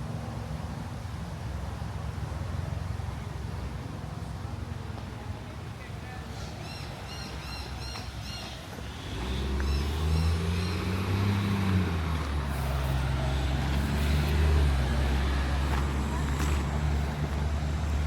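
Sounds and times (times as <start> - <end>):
vehicle engine droning: 7.5 - 18.0.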